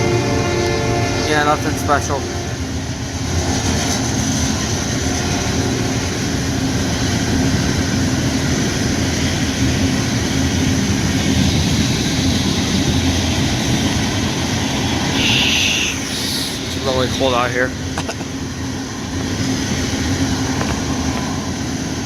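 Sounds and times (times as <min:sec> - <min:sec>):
freight train rumbling past: 0:00.0 - 0:22.0
steady rain hiss: 0:11.2 - 0:18.8.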